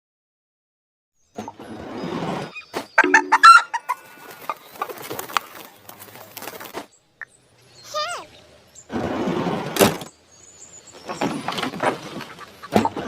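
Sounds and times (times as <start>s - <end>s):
chickens clucking and calling: 1.4s - 6.8s, 10.7s - 13.0s.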